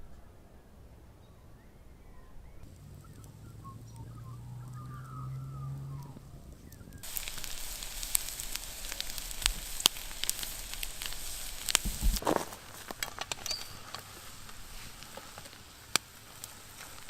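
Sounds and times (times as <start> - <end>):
low hum: 0.0 - 12.8
campfire crackling and popping: 2.6 - 17.0
faint wavering call: 2.8 - 7.0.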